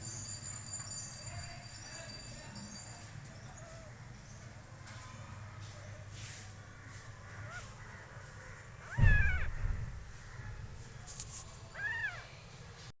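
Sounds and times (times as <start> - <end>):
newborn kittens mewing: 8.8 - 9.6, 11.7 - 12.3
dull bump: 9.0 - 10.0.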